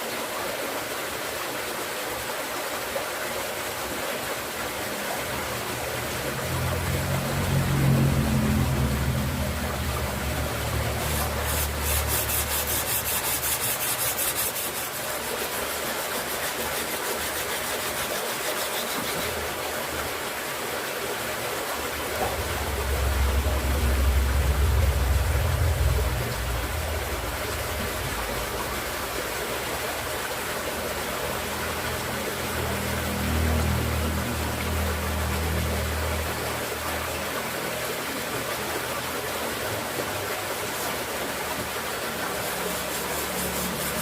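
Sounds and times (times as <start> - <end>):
steel grinding: 10.5 - 19.6, 42.4 - 44.0.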